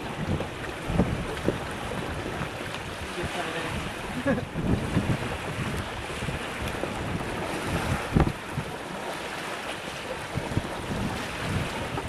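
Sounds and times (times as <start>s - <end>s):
strong gusty wind on microphone: 0.0s - 12.0s.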